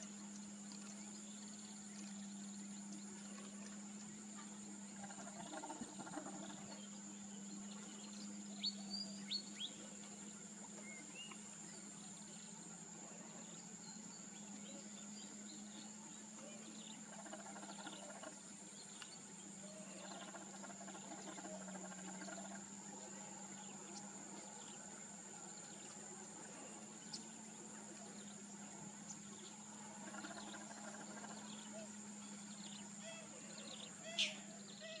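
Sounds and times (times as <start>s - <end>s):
high insect drone: 0.0s - 35.0s
low hum: 0.0s - 35.0s
sharp bird calls: 30.0s - 35.0s.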